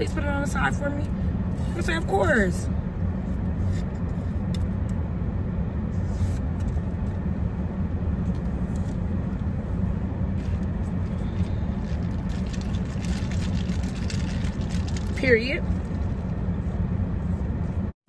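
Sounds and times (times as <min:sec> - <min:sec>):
car idling hum: 0:00.0 - 0:17.9.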